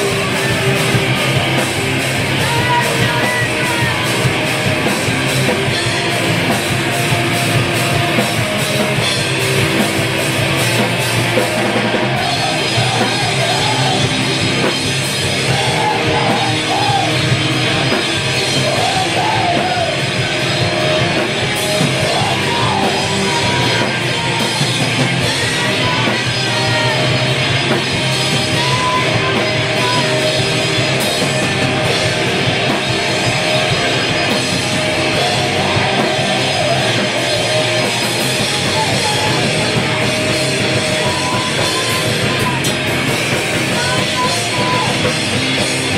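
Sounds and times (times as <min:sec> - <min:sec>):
punk band playing live: 0:00.0 - 0:45.9
shouted vocal: 0:02.3 - 0:04.4, 0:11.6 - 0:14.4, 0:15.3 - 0:17.4, 0:18.5 - 0:20.3, 0:21.9 - 0:27.3, 0:28.3 - 0:30.5, 0:33.6 - 0:42.9, 0:43.5 - 0:45.3.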